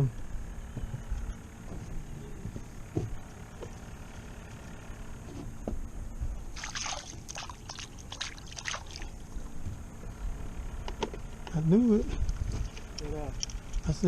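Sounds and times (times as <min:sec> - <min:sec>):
steady low rumble: 0:00.0 - 0:14.0
water splashing beside a boat: 0:06.5 - 0:09.4.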